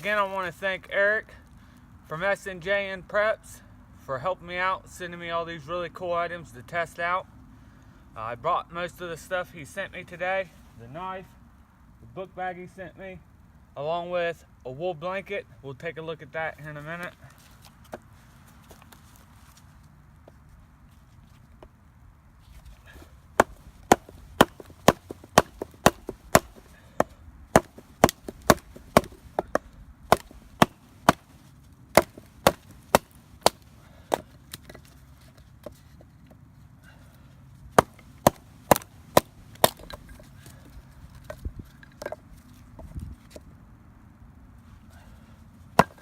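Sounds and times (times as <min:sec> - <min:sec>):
knife chopping wood: 0:22.9 - 0:31.3, 0:31.9 - 0:34.8, 0:37.8 - 0:40.6, 0:45.8 - 0:46.0.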